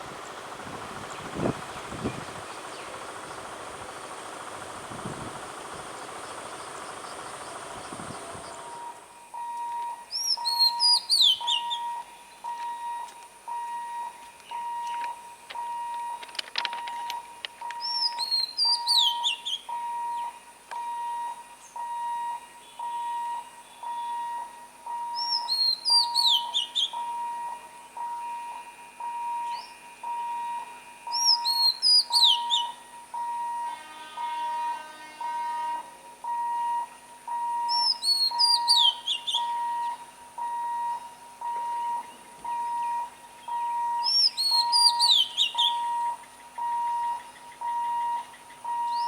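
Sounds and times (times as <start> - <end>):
noisy rumble: 0.0 - 9.4
crossing warning beeps: 0.0 - 49.0
bird whistling: 10.1 - 12.1, 17.8 - 20.4, 25.1 - 27.1, 29.4 - 29.8, 31.1 - 32.8, 37.6 - 40.0, 41.5 - 49.0.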